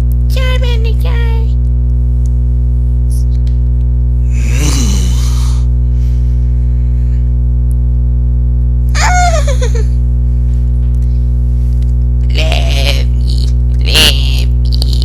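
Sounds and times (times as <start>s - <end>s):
loud electrical hum: 0.0s - 15.0s
man making silly wordless noises: 4.3s - 5.5s, 12.2s - 15.0s.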